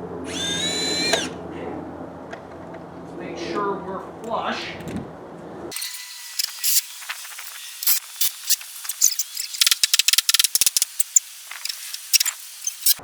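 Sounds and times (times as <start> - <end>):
power driver driving screws: 0.3 - 1.4, 5.8 - 13.0.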